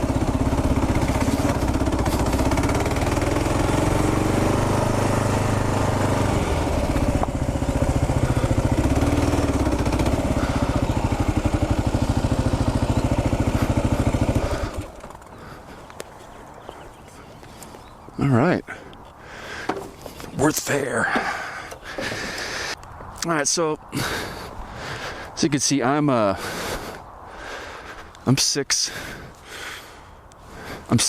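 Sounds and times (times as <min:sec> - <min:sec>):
motorcycle engine idling: 0:00.0 - 0:22.8.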